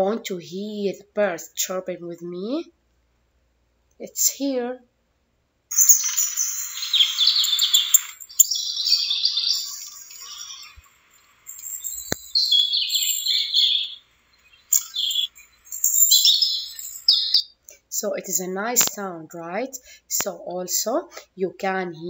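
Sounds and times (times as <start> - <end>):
birds chirping and twittering: 5.7 - 17.6.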